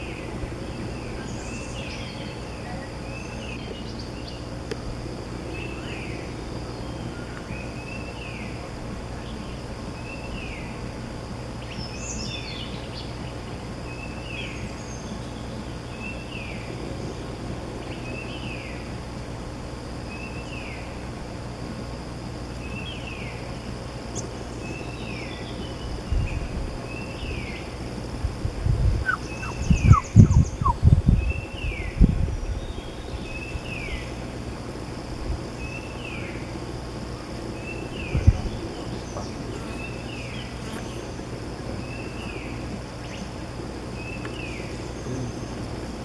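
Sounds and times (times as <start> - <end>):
high insect hum: 0.0 - 46.0
small bird calling: 28.9 - 34.2, 37.5 - 46.0.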